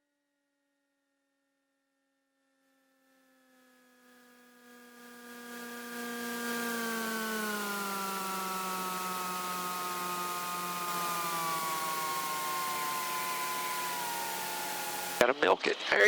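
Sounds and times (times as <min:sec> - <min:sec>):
airplane engine drone: 0:03.3 - 0:16.0.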